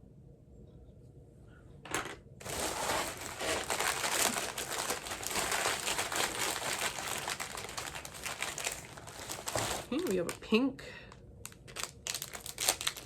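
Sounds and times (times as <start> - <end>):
packaging crinkling: 2.4 - 10.5, 11.4 - 13.0.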